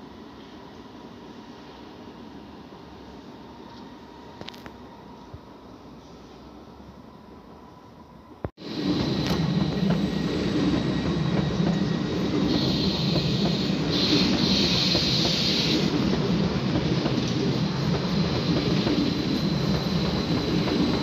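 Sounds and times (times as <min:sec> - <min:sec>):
train wheels rumbling on rails: 0:08.6 - 0:21.0.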